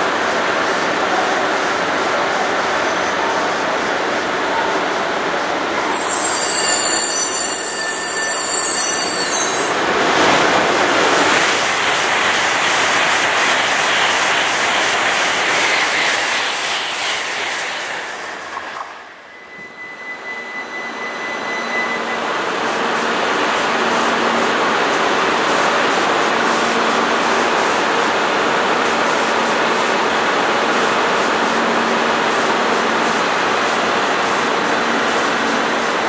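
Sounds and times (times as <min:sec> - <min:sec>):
train rushing past: 0:00.4 - 0:20.2
faint steady tone: 0:05.8 - 0:10.1
high squeal: 0:05.8 - 0:11.6, 0:15.9 - 0:22.3.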